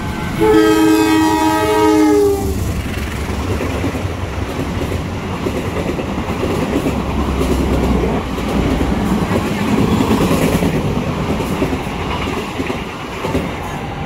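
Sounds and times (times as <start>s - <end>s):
two-tone locomotive horn: 0.0s - 2.6s
train coaches rumbling: 0.0s - 14.0s
wheels clacking over rail joints: 2.6s - 13.8s.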